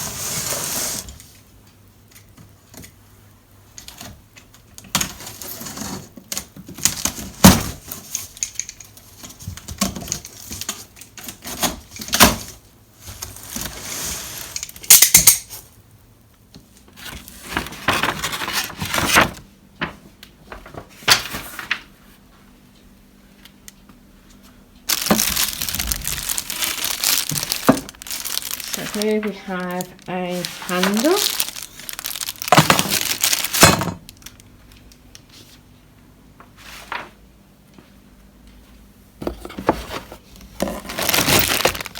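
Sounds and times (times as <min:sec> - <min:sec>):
cardboard packaging rustling: 0:16.9 - 0:21.9, 0:24.9 - 0:34.5, 0:39.3 - 0:41.9.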